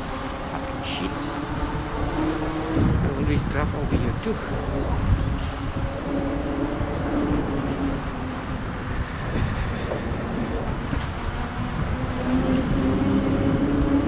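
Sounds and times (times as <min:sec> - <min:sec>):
engine hum: 0:00.0 - 0:14.0
street traffic: 0:00.0 - 0:14.0
wind rumble on microphone: 0:00.0 - 0:14.0.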